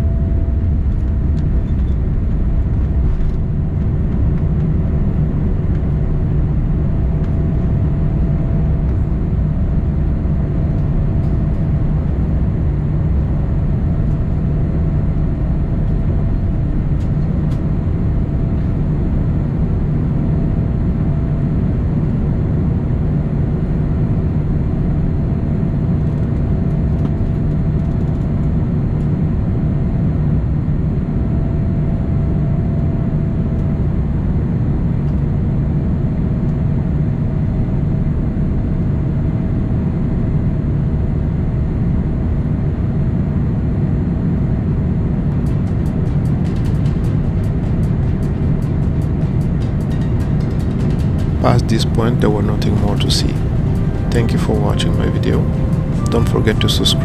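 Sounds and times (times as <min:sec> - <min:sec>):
airliner engines rumbling in cabin: 0:00.0 - 0:24.0, 0:42.2 - 0:57.0
faint steady hum: 0:45.6 - 0:57.0.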